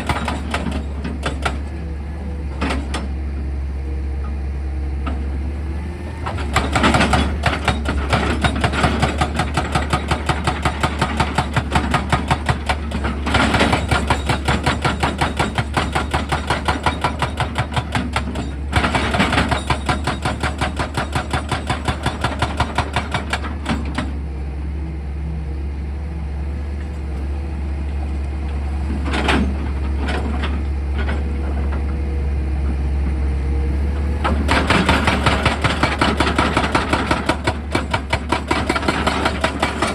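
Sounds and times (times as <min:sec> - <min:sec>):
hydraulic hammer hammering rock: 0:00.0 - 0:01.7, 0:06.3 - 0:24.1, 0:34.2 - 0:39.9
excavator engine hum: 0:00.0 - 0:39.9.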